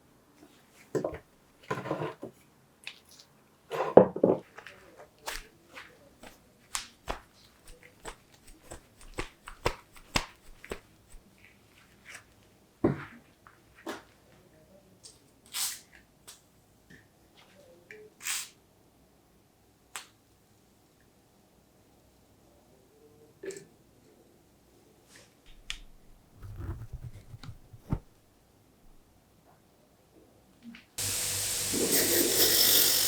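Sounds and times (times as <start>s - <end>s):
short hissing bursts: 31.0s - 33.0s.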